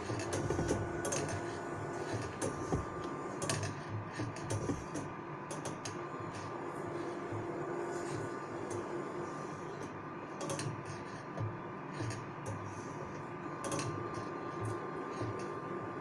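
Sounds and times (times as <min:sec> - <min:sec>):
machine motor hum: 0:00.0 - 0:16.0
sharp mechanical clicks: 0:03.4 - 0:06.4, 0:09.8 - 0:10.8, 0:13.6 - 0:15.5.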